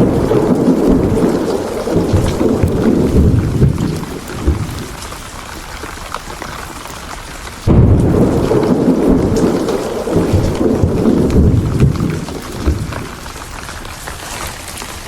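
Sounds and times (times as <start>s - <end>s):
rolling thunder: 0.0s - 5.5s, 7.6s - 13.7s
steady rain: 0.0s - 15.0s.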